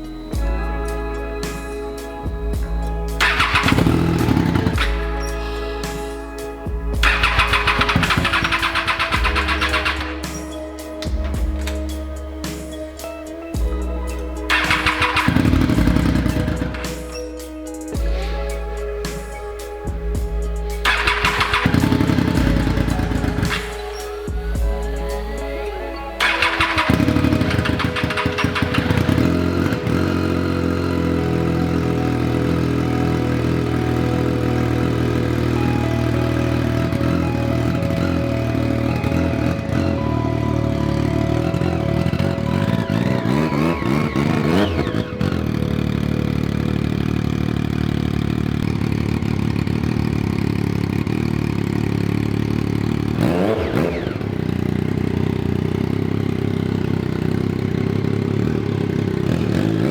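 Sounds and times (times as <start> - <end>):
throttle blips: 0.0 - 47.0
motorcycle engine idling: 0.0 - 59.9.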